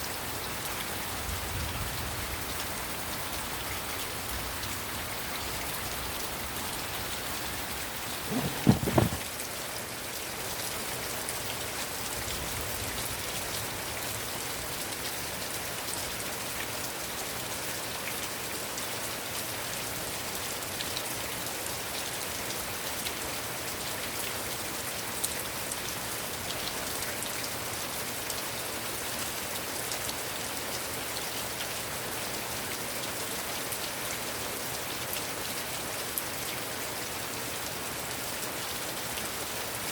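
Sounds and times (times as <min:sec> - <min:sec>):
heavy rain falling: 0:00.0 - 0:22.8
low thump: 0:08.3 - 0:09.2.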